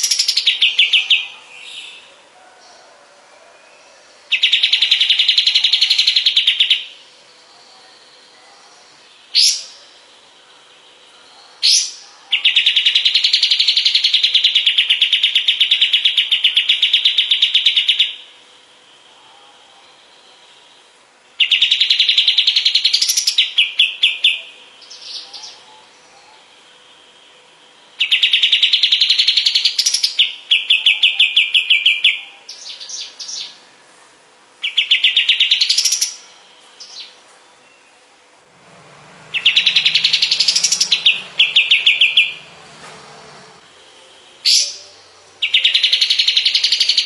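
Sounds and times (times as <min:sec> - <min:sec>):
songbird chattering trills: 0:00.0 - 0:02.1, 0:04.0 - 0:33.7, 0:34.6 - 0:38.0, 0:39.2 - 0:42.8, 0:43.6 - 0:47.0
rising whistled bird notes: 0:39.3 - 0:42.5.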